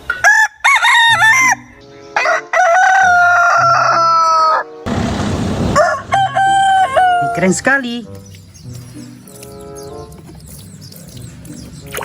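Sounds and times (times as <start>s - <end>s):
rooster crowing: 0.2s - 4.7s, 5.7s - 7.4s.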